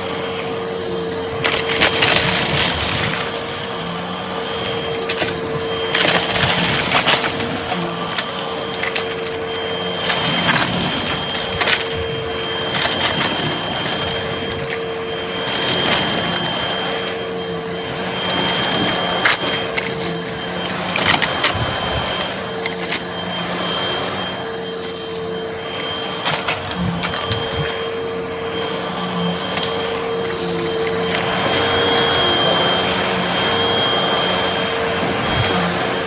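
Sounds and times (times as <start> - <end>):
vacuum cleaner humming and whining: 0.0 - 36.0
debris crunching and rattling: 4.5 - 16.5, 26.2 - 27.9.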